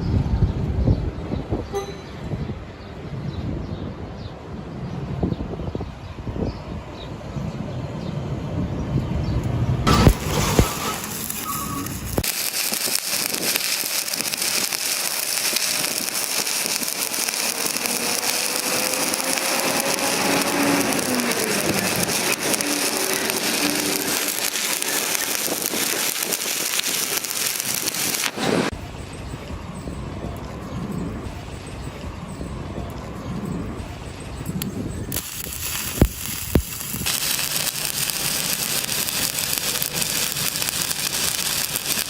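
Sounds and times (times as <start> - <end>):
sharp clicks: 9.9 - 28.4, 34.5 - 42.0
welding arc crackle: 9.9 - 28.8, 35.1 - 42.0.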